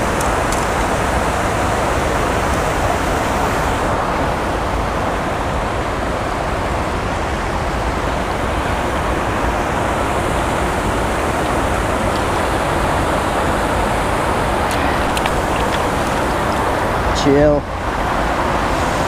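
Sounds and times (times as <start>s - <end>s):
creek water pouring over spillway: 8.6s - 17.6s.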